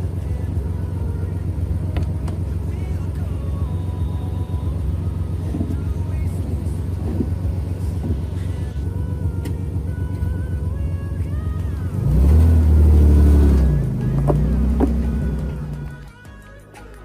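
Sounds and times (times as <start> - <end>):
car engine idling: 0.0 - 16.2.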